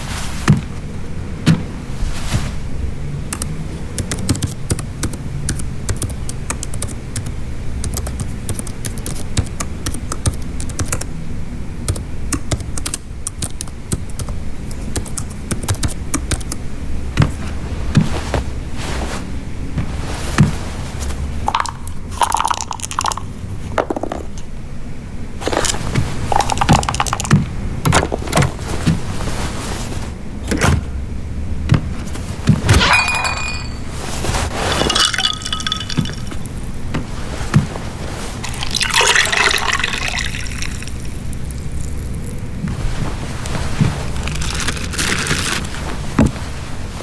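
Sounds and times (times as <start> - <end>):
liquid pouring and splashing: 21.5 - 23.3, 26.2 - 27.3, 34.6 - 36.5, 38.4 - 42.1
glass clinking: 32.8 - 34.0, 34.7 - 36.5.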